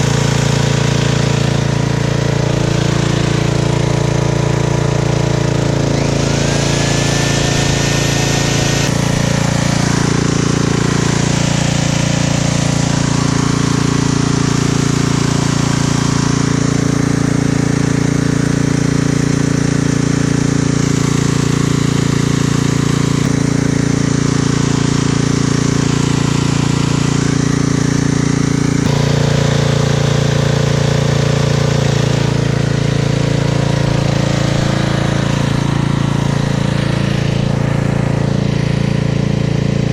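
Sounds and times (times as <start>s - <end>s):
hammer drill coring concrete: 0.0s - 39.9s.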